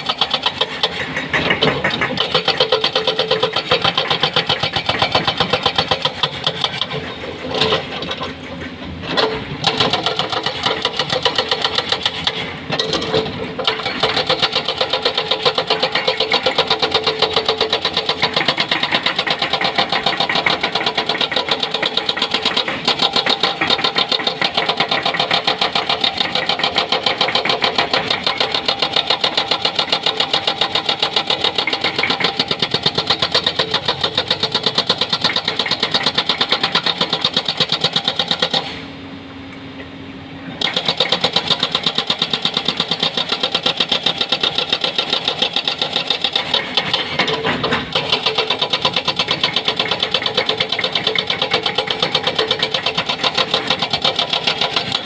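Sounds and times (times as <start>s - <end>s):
hydraulic breaker hammering rock: 0.0s - 38.9s, 40.5s - 55.0s
excavator engine running: 0.0s - 55.0s.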